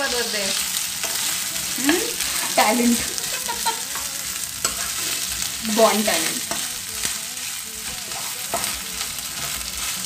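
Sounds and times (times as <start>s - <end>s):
vegetables sizzling in hot oil: 0.0s - 10.0s
spatula scraping and tapping pan: 1.0s - 5.2s, 7.9s - 10.0s.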